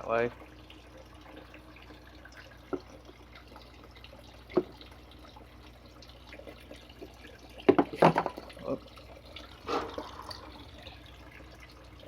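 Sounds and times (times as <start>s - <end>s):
water drops plopping: 2.3s - 3.7s, 4.4s - 5.0s, 6.3s - 11.6s.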